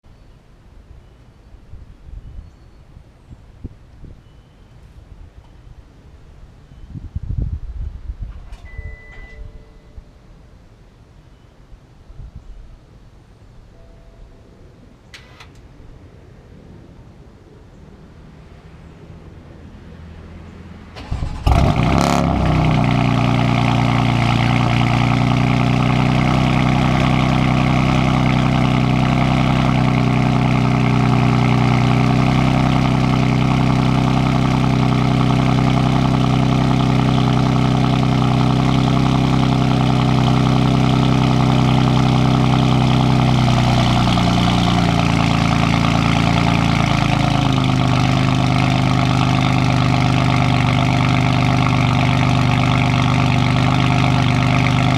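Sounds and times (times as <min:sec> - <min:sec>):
car engine idling: 0:21.0 - 0:54.9.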